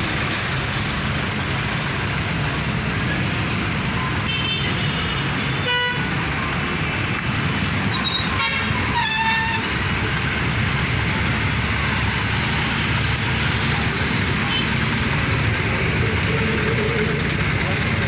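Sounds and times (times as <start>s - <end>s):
heavy road traffic: 0.0s - 18.0s
vehicle horn: 4.3s - 6.1s, 8.3s - 9.7s.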